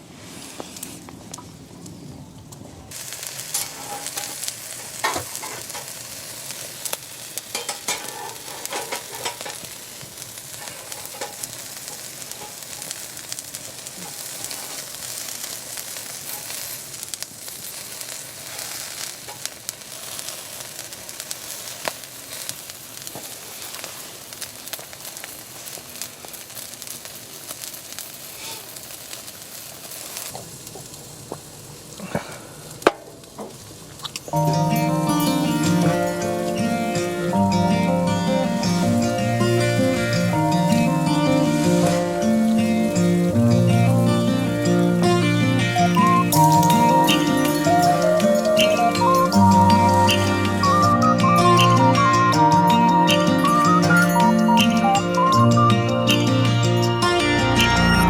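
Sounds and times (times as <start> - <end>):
food sizzling in a hot pan: 2.9 - 58.0.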